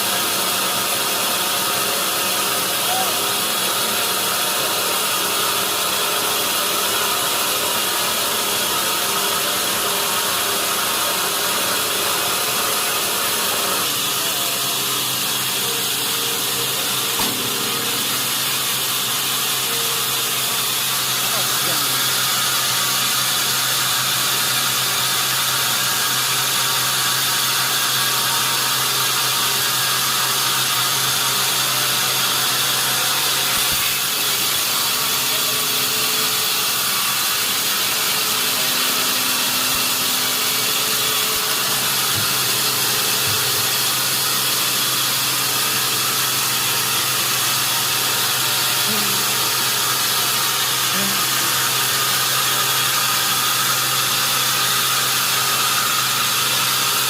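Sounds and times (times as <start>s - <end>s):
sawmill saw rushing: 0.0s - 57.0s
constant low hum: 16.8s - 20.8s.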